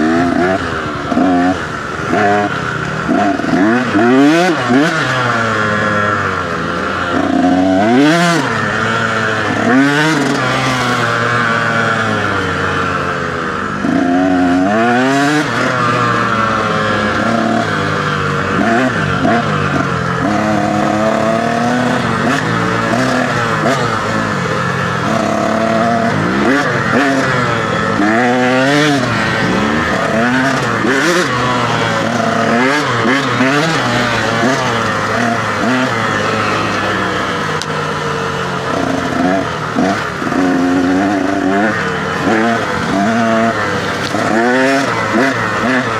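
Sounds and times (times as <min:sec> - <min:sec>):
dirt bike engine revving: 0:00.0 - 0:45.9
wind: 0:00.0 - 0:45.9
tyre noise: 0:15.1 - 0:45.9.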